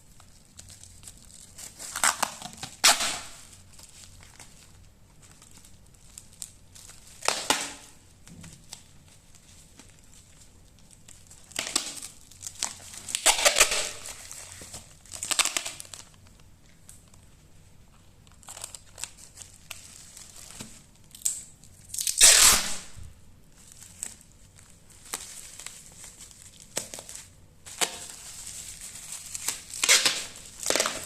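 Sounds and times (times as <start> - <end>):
packing material crinkling: 0.0 - 31.0.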